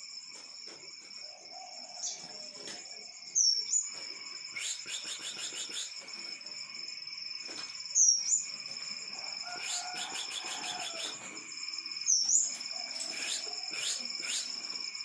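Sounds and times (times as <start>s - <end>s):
bird trills: 7.9s - 8.5s, 12.1s - 14.6s.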